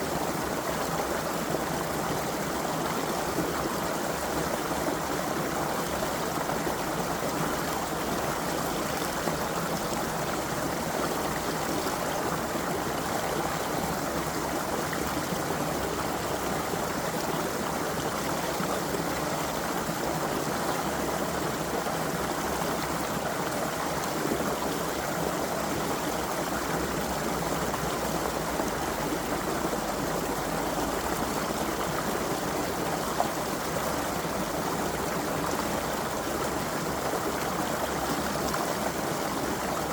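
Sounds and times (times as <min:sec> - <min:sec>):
creek water babbling: 0:00.0 - 0:39.9.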